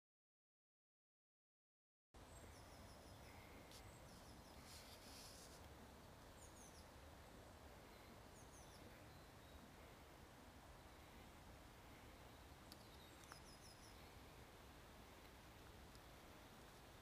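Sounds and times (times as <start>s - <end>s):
soft hiss: 2.2s - 17.0s
high bird chirps: 12.2s - 14.2s.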